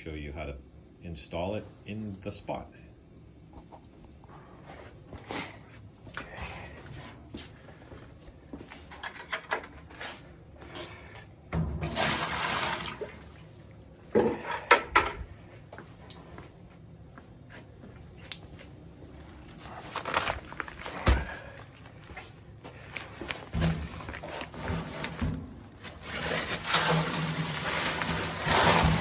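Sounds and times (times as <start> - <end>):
concrete pouring into wheelbarrow: 11.8 - 13.5, 22.8 - 29.0
scrapes and knocks: 22.7 - 29.0.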